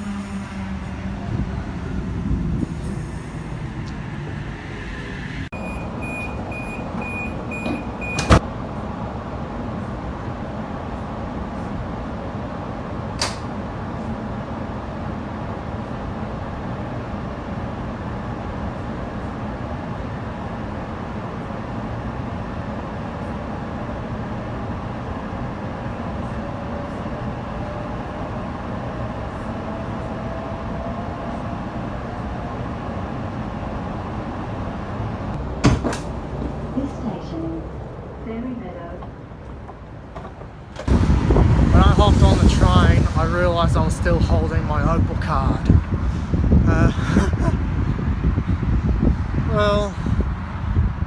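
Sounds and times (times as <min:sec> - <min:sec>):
train rumbling: 0:00.0 - 0:51.0
sharp click: 0:13.2 - 0:13.5.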